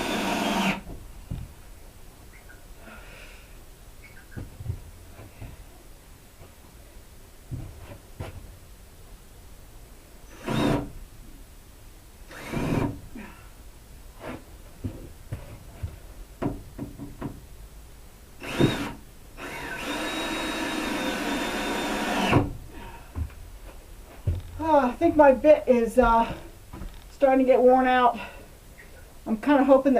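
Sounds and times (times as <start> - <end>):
cordless drill drilling: 0.0 - 0.8, 10.4 - 10.8, 12.3 - 12.9, 18.4 - 22.5
handling knocks and clicks: 23.2 - 24.6.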